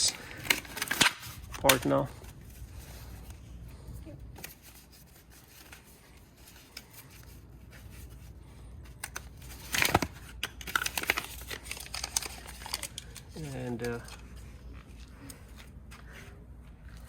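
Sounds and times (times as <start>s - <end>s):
packaging tearing and crumpling: 0.0s - 2.1s, 8.9s - 14.2s.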